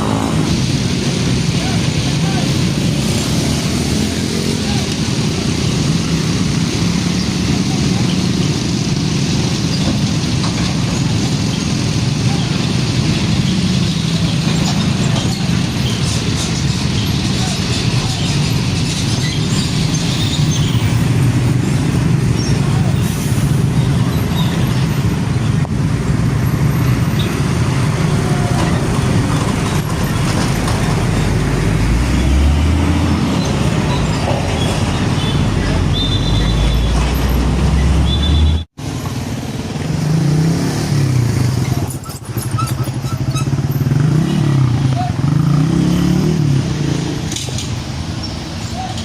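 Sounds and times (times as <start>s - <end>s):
truck engine changing speed: 0.0s - 39.0s
diesel trucks passing: 0.0s - 49.0s.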